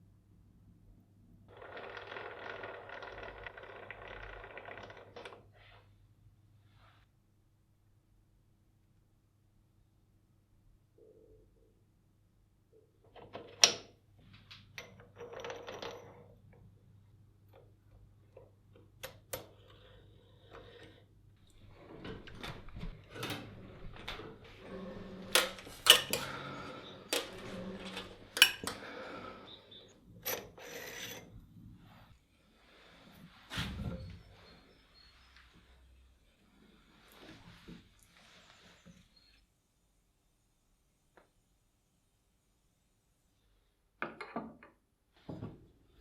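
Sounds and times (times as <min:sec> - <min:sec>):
small metal parts clicking and scraping: 0:25.3 - 0:26.2, 0:27.1 - 0:28.8.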